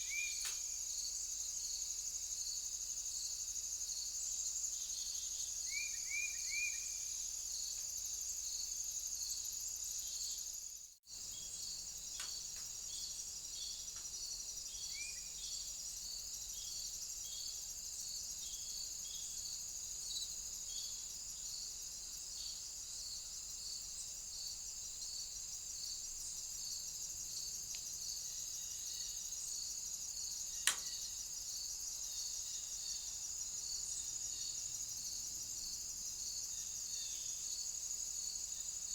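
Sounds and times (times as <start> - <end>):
crickets trilling: 0.0 - 38.9
sharp click: 30.6 - 30.9.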